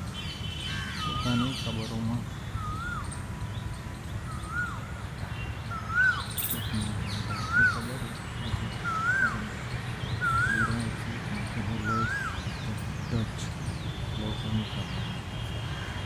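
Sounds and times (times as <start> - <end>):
bird whistling: 2.5 - 3.2, 4.3 - 4.9, 5.7 - 7.9, 8.7 - 9.5, 10.1 - 10.8, 11.8 - 12.6.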